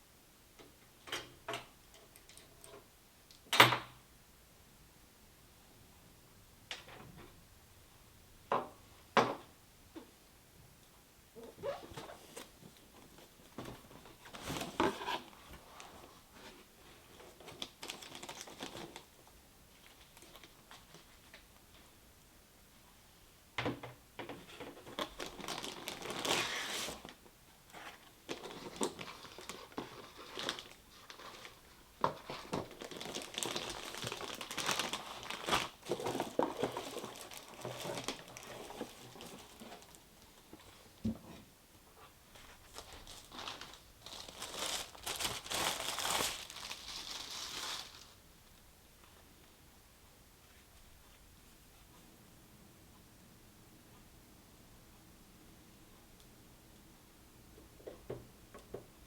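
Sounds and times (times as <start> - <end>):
packaging crinkling and rustling: 11.6 - 21.4, 24.6 - 40.8, 42.3 - 48.2.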